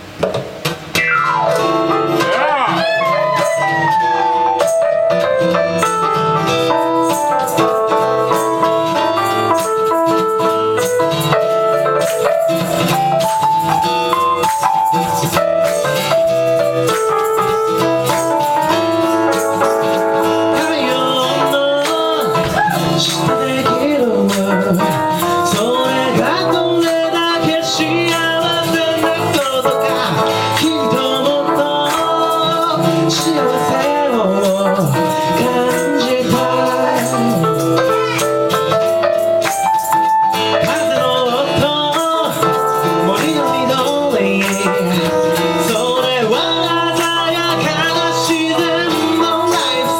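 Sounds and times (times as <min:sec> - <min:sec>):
ragtime blues on acoustic instruments: 0:00.0 - 0:49.9
person singing: 0:01.5 - 0:04.5, 0:19.3 - 0:38.6, 0:40.4 - 0:49.9
shaker rattling: 0:06.7 - 0:49.9.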